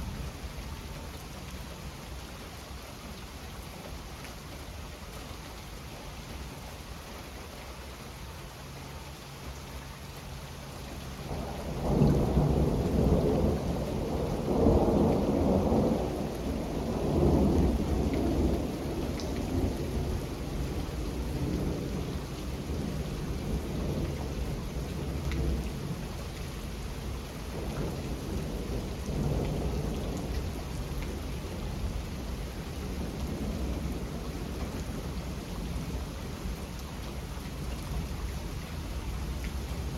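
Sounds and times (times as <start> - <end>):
steady rain: 0.0 - 39.9
rolling thunder rumble: 11.2 - 26.1, 27.0 - 36.6.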